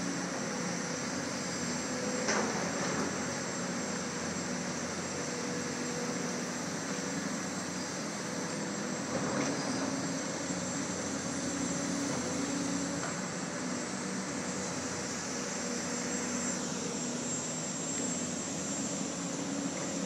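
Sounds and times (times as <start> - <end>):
diesel excavator engines running: 0.0 - 20.0.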